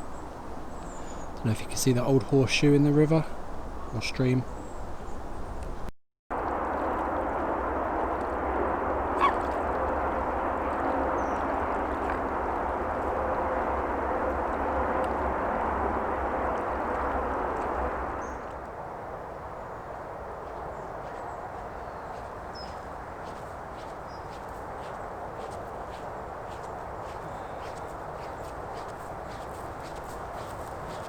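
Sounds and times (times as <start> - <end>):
stream water rushing: 6.4 - 19.2.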